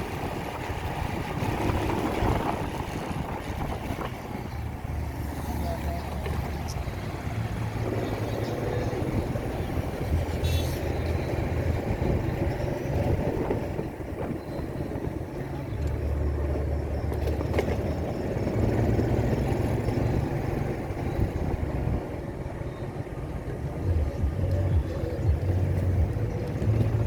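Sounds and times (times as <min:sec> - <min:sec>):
steady rushing noise: 0:00.0 - 0:17.1
motorcycle engine running: 0:23.6 - 0:27.0.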